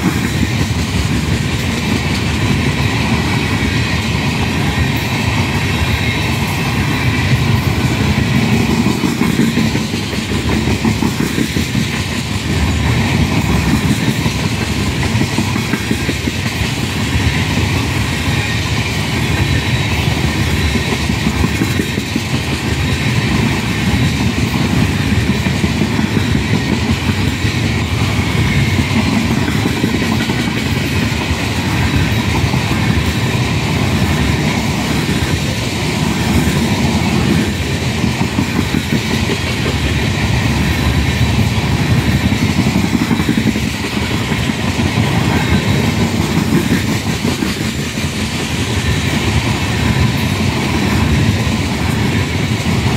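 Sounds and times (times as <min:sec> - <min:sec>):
clickety-clack of wheels: 0:00.0 - 0:52.9
train wheels rumbling on rails: 0:00.0 - 0:52.9.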